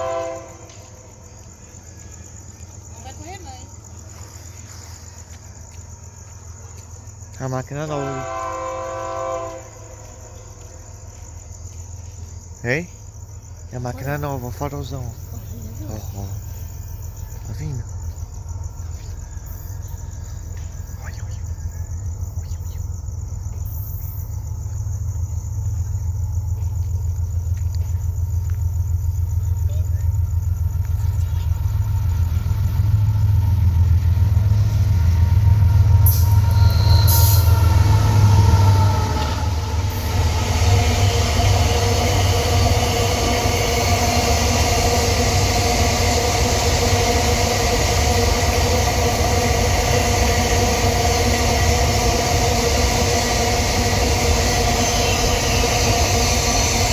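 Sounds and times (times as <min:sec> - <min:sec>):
locomotive engine rumble: 0:00.0 - 0:56.9
wheels squealing: 0:26.7 - 0:56.9.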